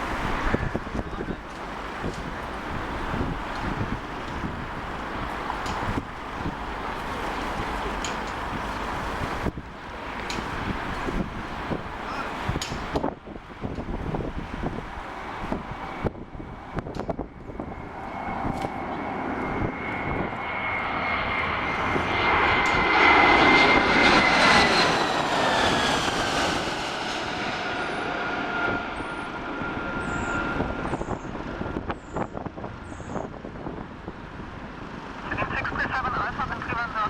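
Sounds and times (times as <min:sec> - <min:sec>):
jet airliner flying past: 0:00.0 - 0:37.0.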